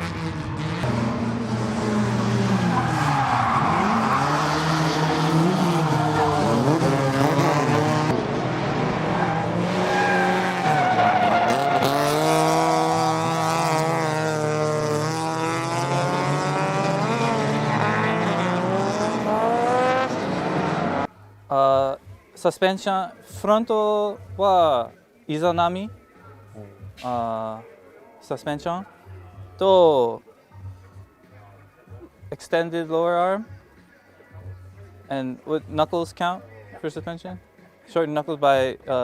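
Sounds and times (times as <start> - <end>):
car engine revving: 0.0 - 21.1.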